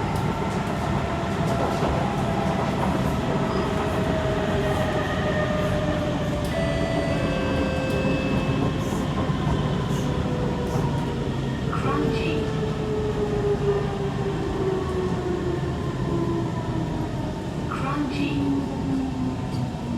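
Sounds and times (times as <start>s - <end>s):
train wheels rumbling on track: 0.0s - 13.4s.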